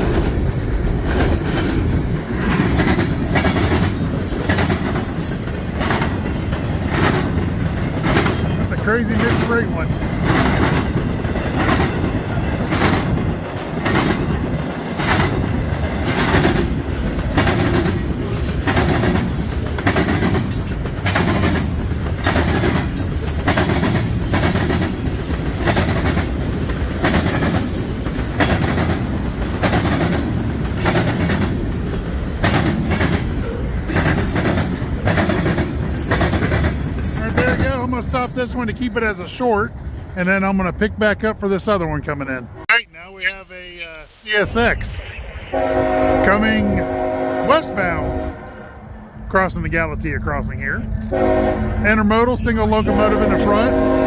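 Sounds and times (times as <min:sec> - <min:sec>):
wheels clacking over rail joints: 0:00.0 - 0:40.2
freight train cars rumbling past: 0:00.0 - 0:54.0.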